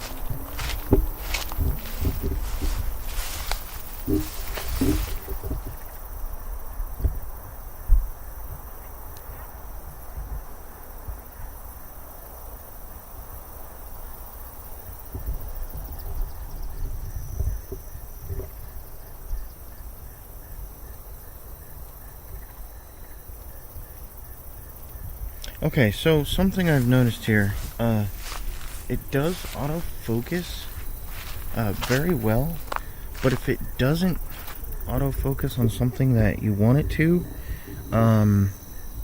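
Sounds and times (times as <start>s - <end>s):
crickets chirping: 0.0s - 39.0s
low thuds on microphone: 0.2s - 5.8s.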